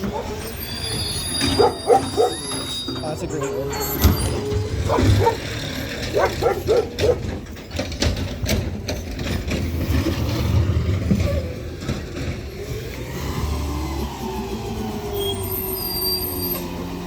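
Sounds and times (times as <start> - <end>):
dog barking: 0.0 - 0.4, 1.5 - 2.5, 4.8 - 5.5, 6.1 - 7.3
truck engine running: 0.0 - 15.8.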